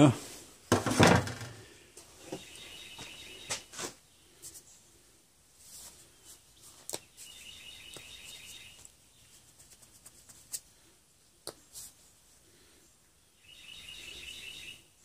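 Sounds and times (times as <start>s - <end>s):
songbird trilling: 13.4s - 14.8s.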